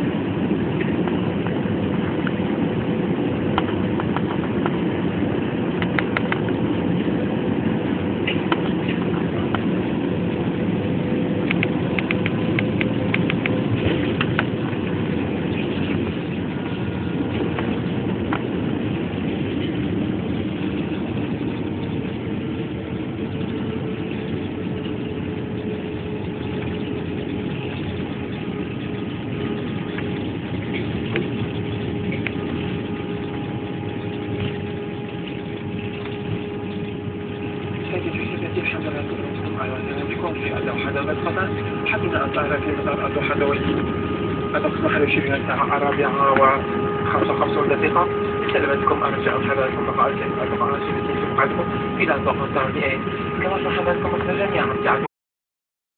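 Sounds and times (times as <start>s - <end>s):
jet airliner cabin noise: 0.0s - 55.1s
faint steady hum: 11.4s - 55.1s.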